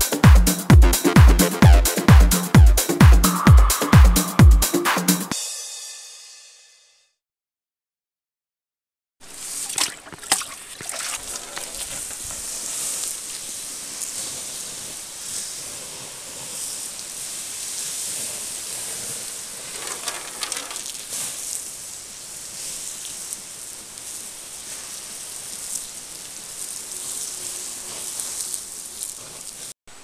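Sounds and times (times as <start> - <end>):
campfire flames hissing: 9.2 - 29.8
burning wood crackling and popping: 9.4 - 29.8.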